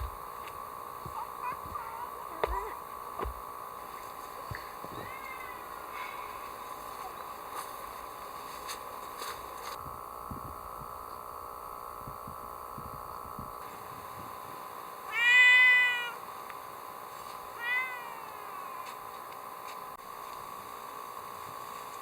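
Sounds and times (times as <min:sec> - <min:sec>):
cat meowing: 0:04.9 - 0:06.3, 0:15.1 - 0:16.2, 0:17.6 - 0:19.0.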